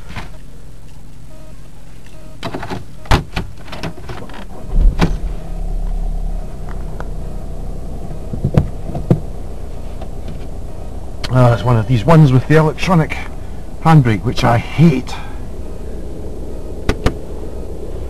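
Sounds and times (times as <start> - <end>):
car door shutting: 2.4 - 10.5
car engine starting and idling: 4.2 - 18.0.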